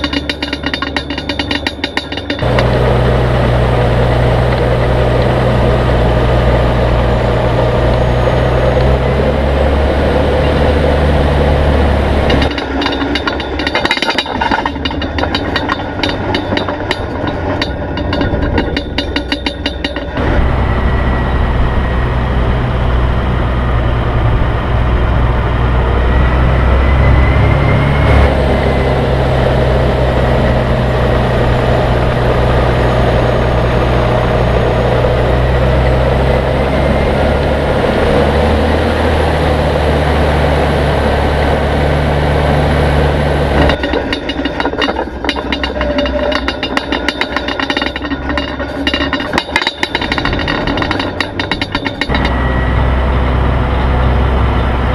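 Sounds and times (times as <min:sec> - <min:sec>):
rapid clatter of clicks: 0:00.0 - 0:02.8, 0:12.3 - 0:20.2, 0:43.6 - 0:52.4
engine droning: 0:00.0 - 0:54.9.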